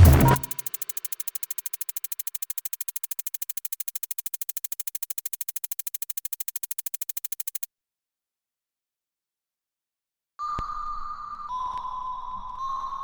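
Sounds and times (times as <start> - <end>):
rapid sharp clicks: 0.0 - 7.7.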